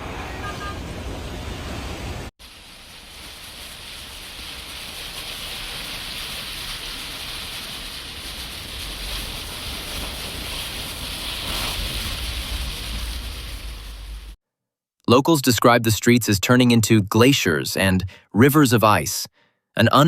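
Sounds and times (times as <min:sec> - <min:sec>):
wind rumbling on microphone: 0:01.2 - 0:14.4
heavy rain falling: 0:01.8 - 0:14.4.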